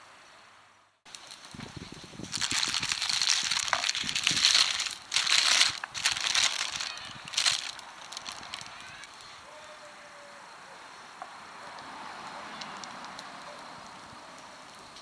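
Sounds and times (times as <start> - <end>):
crinkling and crunching: 1.1 - 9.4.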